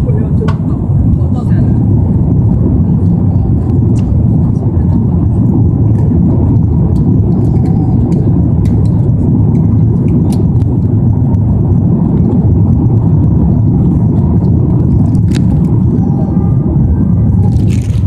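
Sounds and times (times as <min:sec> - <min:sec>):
airliner cabin engine rumble: 0:00.0 - 0:18.0.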